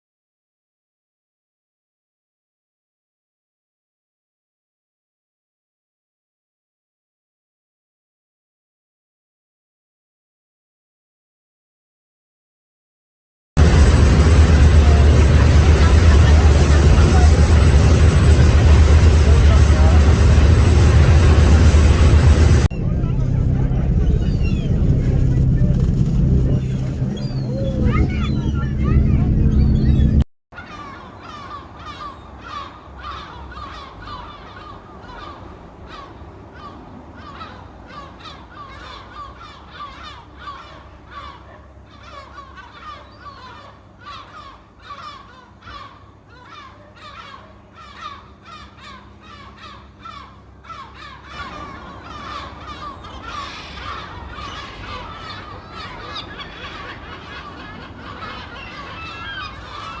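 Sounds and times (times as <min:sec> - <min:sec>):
seagulls squawking: 0:13.6 - 1:00.0.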